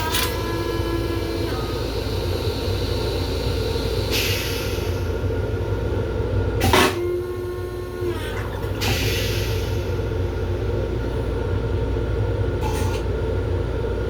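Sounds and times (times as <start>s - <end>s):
railcar rumbling: 0.0s - 14.0s
hiss: 0.4s - 5.2s, 8.8s - 10.0s.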